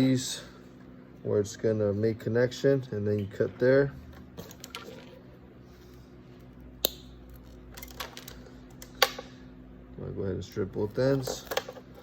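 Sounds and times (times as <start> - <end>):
wire cutters snipping: 11.0 - 12.0.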